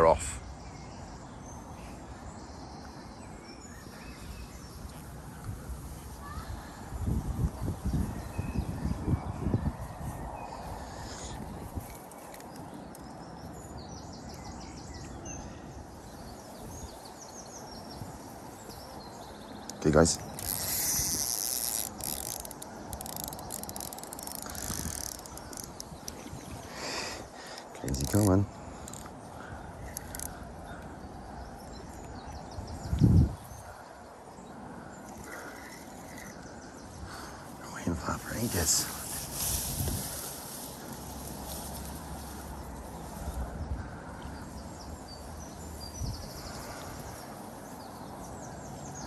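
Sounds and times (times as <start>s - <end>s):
small birds chirping: 0.0s - 49.0s
fishing reel ticking: 20.4s - 26.2s, 29.9s - 30.3s.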